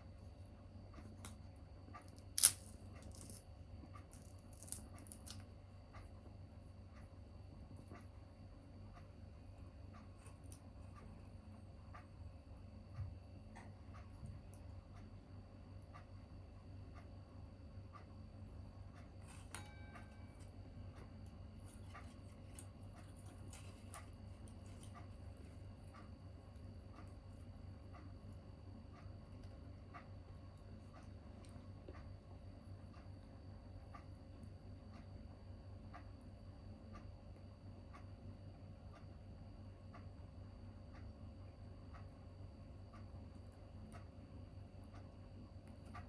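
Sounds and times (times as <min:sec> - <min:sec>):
clock ticking: 0:05.5 - 0:46.0
metallic ring: 0:19.3 - 0:20.5.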